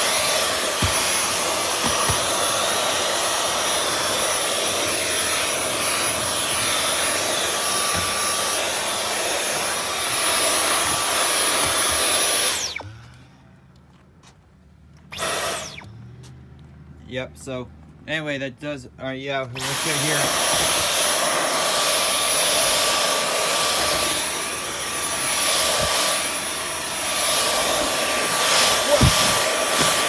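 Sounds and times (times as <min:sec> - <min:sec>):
vacuum cleaner whining: 0:00.0 - 0:13.2, 0:15.1 - 0:16.0, 0:19.4 - 0:30.0
motor winding down: 0:00.0 - 0:13.3, 0:15.1 - 0:16.3, 0:19.5 - 0:30.0
nozzle knocking: 0:00.8 - 0:02.5.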